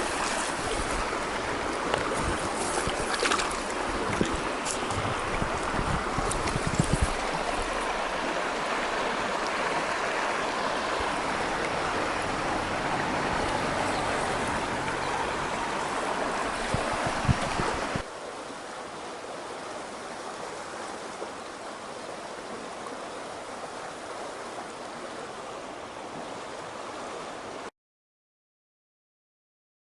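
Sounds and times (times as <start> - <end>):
mountain stream rushing: 0.0 - 27.7.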